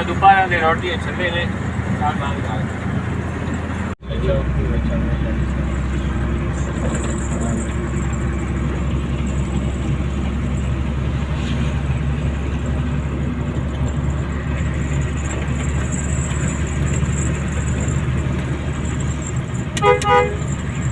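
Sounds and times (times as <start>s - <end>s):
road noise: 0.0s - 20.9s
vehicle engine hum: 0.0s - 20.9s.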